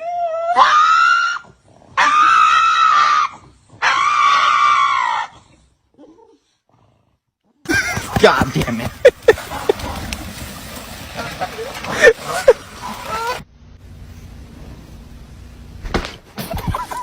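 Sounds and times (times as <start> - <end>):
animal screaming: 0.2 - 5.4, 12.0 - 13.4.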